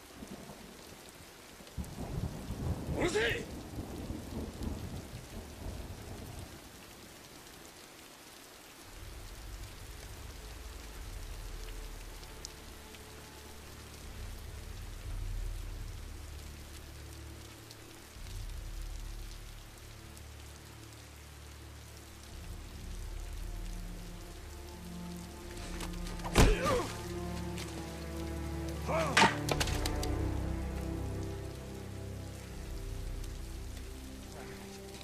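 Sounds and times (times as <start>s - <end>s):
heavy rain: 0.0s - 35.0s
thunderclap: 1.8s - 6.6s
low steady drone: 8.8s - 29.0s.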